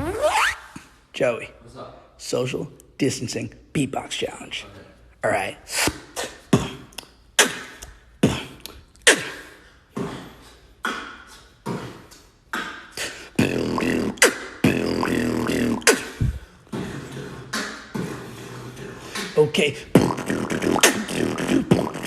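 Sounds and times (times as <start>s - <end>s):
person beatboxing: 5.6s - 22.0s
steady low hum: 13.1s - 22.0s.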